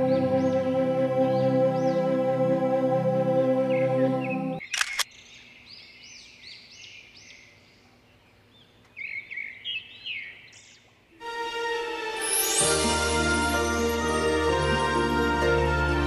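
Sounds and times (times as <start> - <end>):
bird chirping: 3.6 - 11.0.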